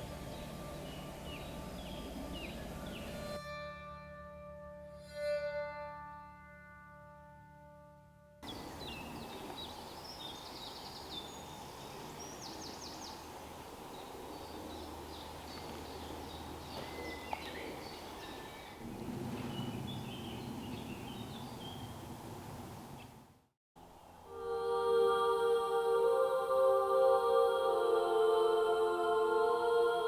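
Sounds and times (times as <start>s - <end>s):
steady background hiss: 0.0s - 3.4s, 8.4s - 30.0s
low noise: 0.0s - 3.5s, 8.4s - 30.0s
small birds chirping and trilling: 8.4s - 23.2s.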